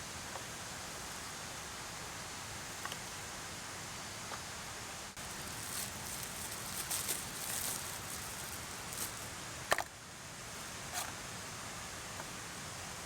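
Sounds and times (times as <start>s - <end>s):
rustling handling sounds: 5.2s - 9.4s
mountain stream rushing: 5.2s - 9.6s.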